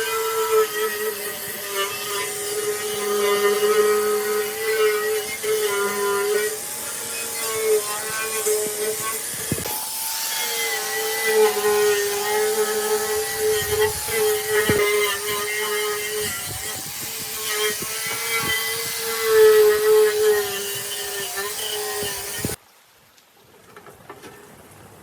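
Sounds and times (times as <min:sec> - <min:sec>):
handheld power tool running: 0:00.0 - 0:22.6
sharp knocks: 0:08.6 - 0:09.7.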